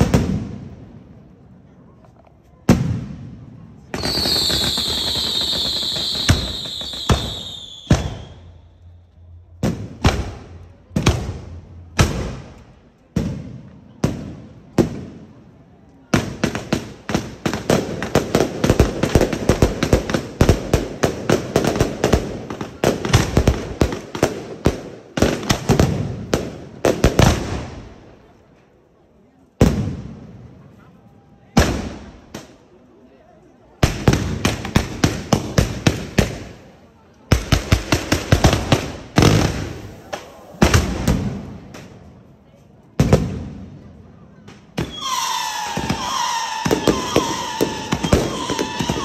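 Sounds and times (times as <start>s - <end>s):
rapid firecracker bangs: 0.0s - 0.8s, 2.6s - 8.5s, 9.5s - 15.4s, 29.6s - 30.5s, 31.6s - 32.6s, 33.8s - 36.7s, 37.3s - 42.0s, 43.0s - 43.7s, 44.4s - 49.0s
firework bangs: 0.0s - 1.0s, 2.6s - 15.5s, 16.1s - 28.1s, 29.6s - 30.5s, 31.6s - 32.6s, 33.8s - 42.1s, 43.0s - 49.0s
whistling firework: 3.8s - 10.4s, 44.7s - 49.0s.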